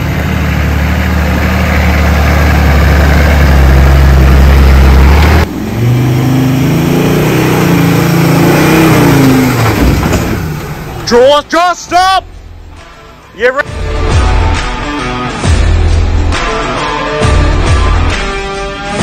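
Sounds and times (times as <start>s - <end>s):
vehicle engine running and revving: 0.0s - 11.0s.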